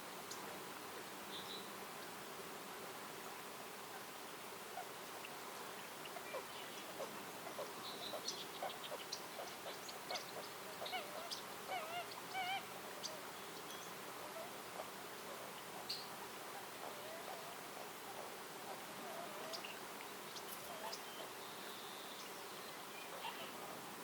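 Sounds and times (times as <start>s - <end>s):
faint steady hiss: 0.0s - 24.0s
birds chirping and warbling: 4.8s - 23.6s.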